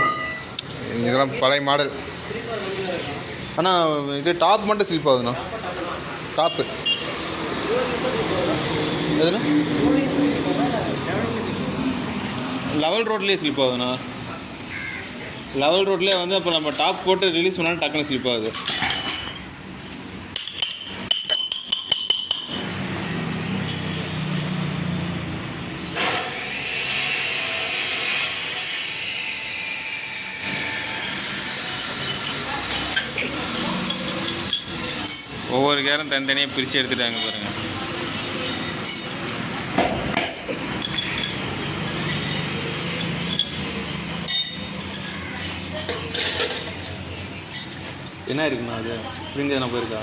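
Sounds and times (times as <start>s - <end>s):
metal-on-metal clinks: 20.4s - 22.7s, 23.6s - 24.7s, 33.8s - 35.4s, 38.4s - 39.3s, 40.4s - 45.2s.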